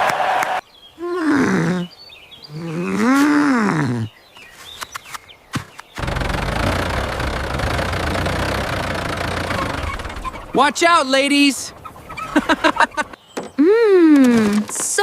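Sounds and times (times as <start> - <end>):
steady low rumbling noise: 6.0 - 10.6
drawn-out animal calls: 6.0 - 13.2.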